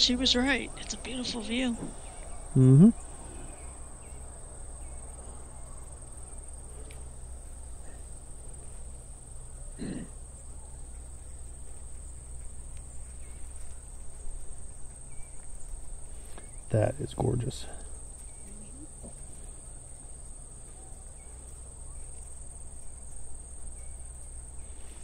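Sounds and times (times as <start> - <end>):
crickets trilling: 0.0 - 25.0
soft human voice: 2.6 - 3.0.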